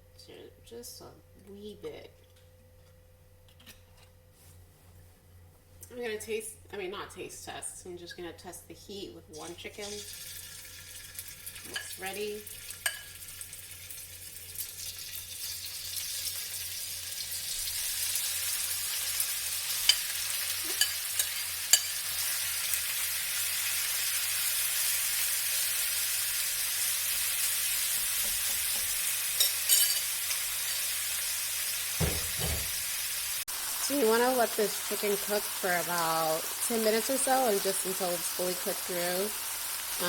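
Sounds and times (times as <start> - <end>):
chicken sizzling in a wok: 9.4 - 40.0
low thump: 32.0 - 32.8.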